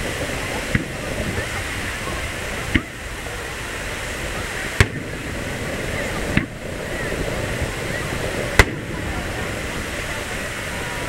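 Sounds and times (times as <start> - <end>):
surf rushing on beach: 0.0 - 11.0
firework shells booming: 0.3 - 3.1, 4.7 - 9.5.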